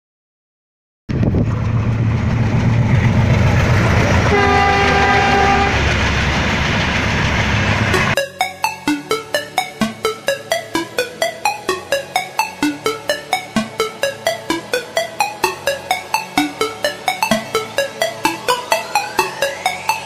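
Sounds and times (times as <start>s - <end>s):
train coaches rumbling past: 1.2s - 8.2s
train horn: 3.8s - 5.9s
electronic dance music: 8.0s - 20.0s.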